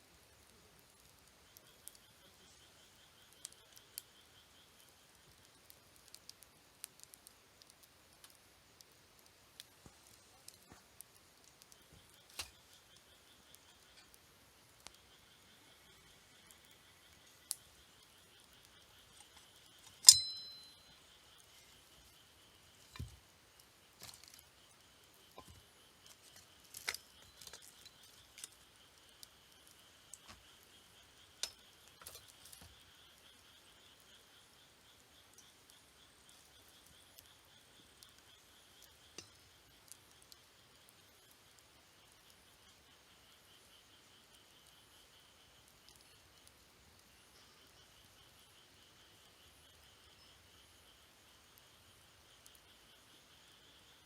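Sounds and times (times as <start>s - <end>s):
campfire crackling and popping: 0.0s - 54.0s
faint high chirping: 9.2s - 54.0s
faint high-pitched tone: 19.9s - 22.1s.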